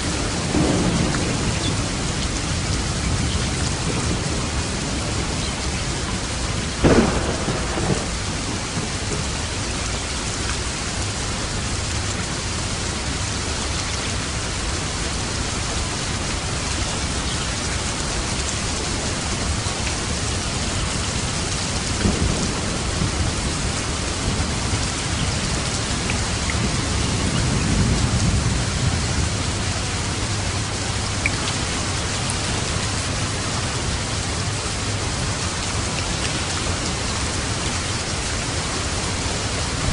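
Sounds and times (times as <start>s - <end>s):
thunder rumbling: 0.0s - 12.0s, 19.4s - 35.9s, 38.5s - 39.9s
heavy rain: 0.0s - 39.9s
thunderclap: 0.4s - 5.4s, 6.8s - 9.5s, 22.0s - 24.8s.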